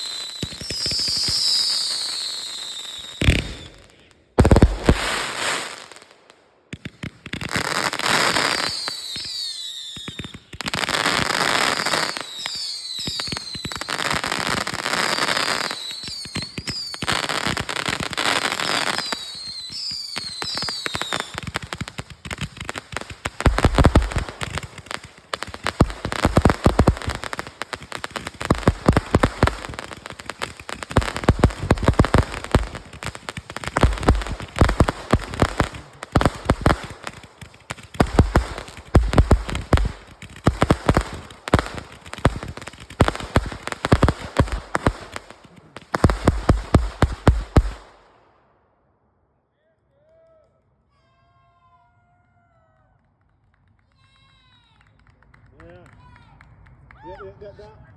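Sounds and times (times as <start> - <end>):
heavy fireworks bangs: 0.0 - 5.9, 10.0 - 48.0
fireworks whistling: 0.0 - 48.1
fireworks crackling pops: 0.0 - 48.4.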